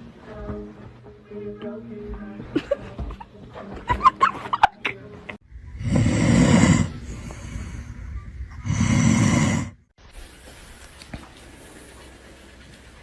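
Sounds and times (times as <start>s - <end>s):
animal snoring rasps: 5.8s - 8.0s, 8.6s - 9.8s.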